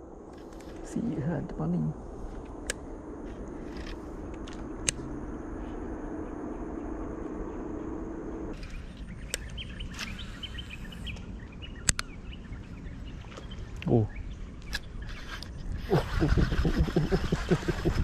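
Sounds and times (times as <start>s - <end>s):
low hum and hiss: 0.0s - 18.0s
small birds chirping: 3.4s - 18.0s
sharp clicks: 3.7s - 5.1s, 8.6s - 12.1s.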